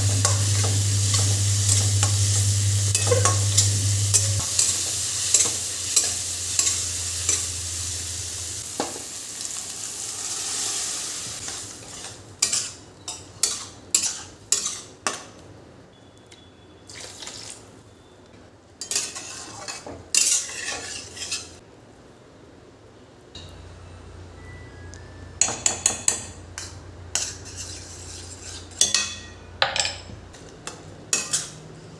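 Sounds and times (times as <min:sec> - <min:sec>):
food sizzling in a pan: 0:00.0 - 0:15.4, 0:16.9 - 0:17.7, 0:18.8 - 0:21.6, 0:25.4 - 0:29.4, 0:30.6 - 0:31.6
sharp stirring strokes: 0:27.1 - 0:28.9.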